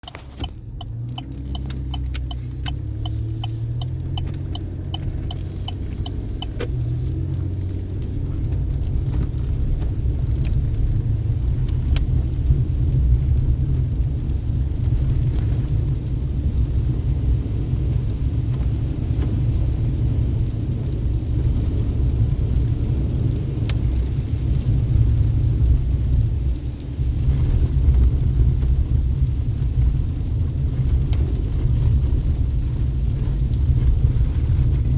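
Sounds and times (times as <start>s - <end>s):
regular ticking: 0.0s - 8.0s
engine and tyre rumble: 0.0s - 34.9s.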